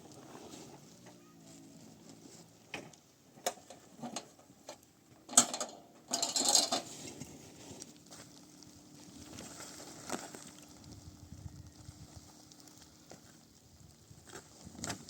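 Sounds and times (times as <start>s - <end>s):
scraping clatter: 2.1s - 7.9s
objects knocking and clicking: 2.8s - 6.9s.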